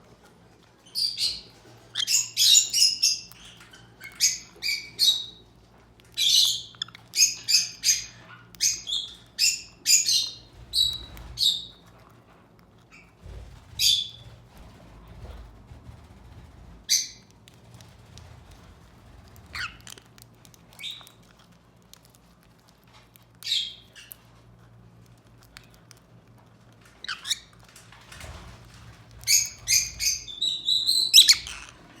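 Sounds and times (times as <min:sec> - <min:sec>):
parrot chirps: 0:01.0 - 0:05.4, 0:06.2 - 0:11.8, 0:19.5 - 0:20.0, 0:29.3 - 0:32.0
parrots squawking: 0:19.5 - 0:20.0, 0:29.3 - 0:32.0.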